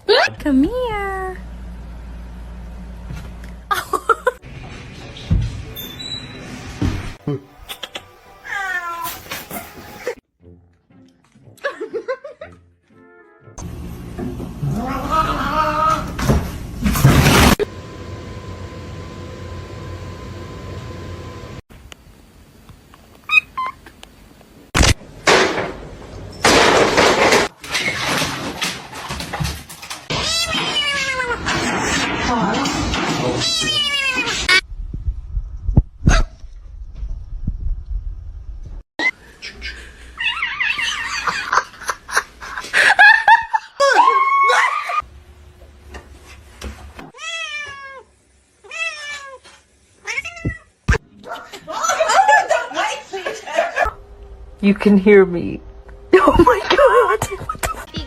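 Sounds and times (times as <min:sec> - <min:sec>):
cat meowing: 0:30.1 - 0:31.5, 0:33.4 - 0:34.5.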